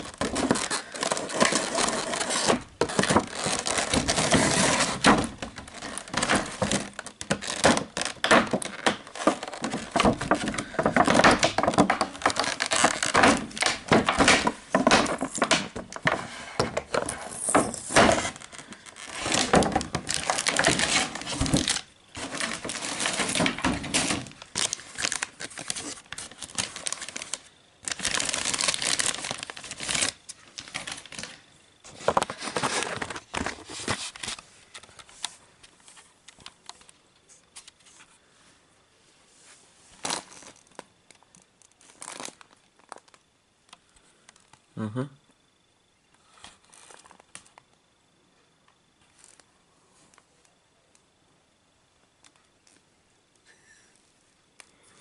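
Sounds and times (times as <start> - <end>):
plastic packaging crinkling and tearing: 0.0 - 35.4, 40.0 - 43.3, 46.6 - 47.6.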